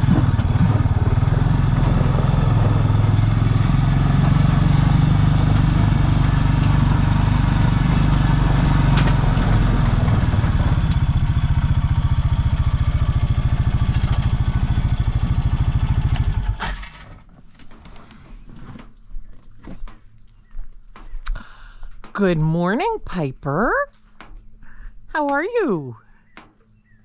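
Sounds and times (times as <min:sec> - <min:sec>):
vehicle engine idling: 0:00.0 - 0:16.6.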